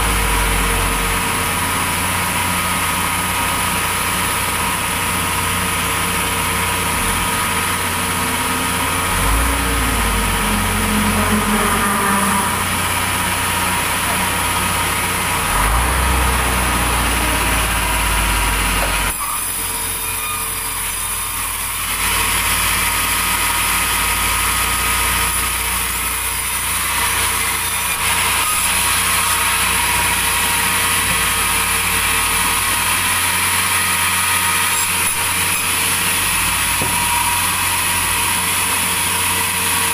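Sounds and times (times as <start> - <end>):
engine drone: 0.0 - 39.9
high machine whine: 0.0 - 39.9.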